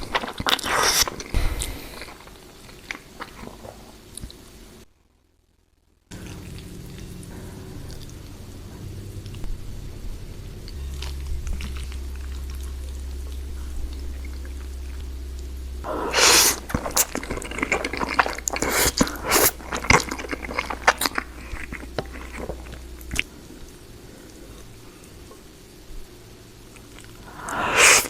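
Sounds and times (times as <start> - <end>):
wet chewing with crackles: 0.0 - 4.6, 6.1 - 28.0
low steady hum: 0.0 - 28.0
biting into food: 15.9 - 23.2.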